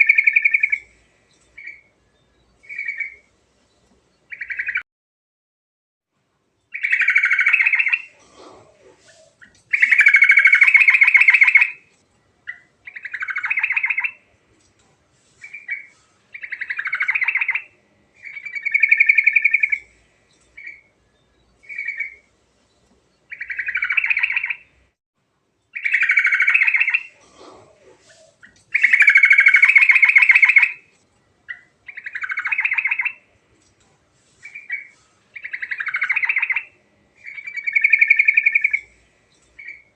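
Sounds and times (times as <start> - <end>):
bird singing trilled phrases: 0.0 - 4.8, 6.7 - 8.2, 9.1 - 11.8, 12.4 - 14.2, 15.4 - 24.8, 25.7 - 27.2, 28.1 - 30.8, 31.4 - 33.3, 34.4 - 39.9.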